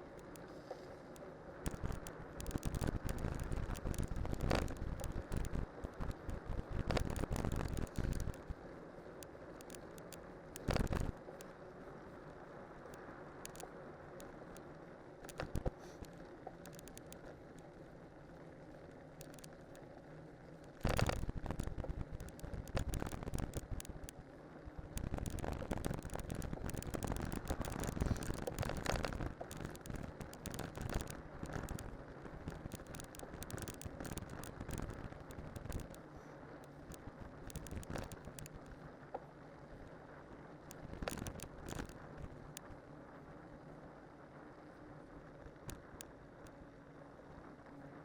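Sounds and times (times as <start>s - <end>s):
bicycle tyres rolling: 24.9s - 38.9s.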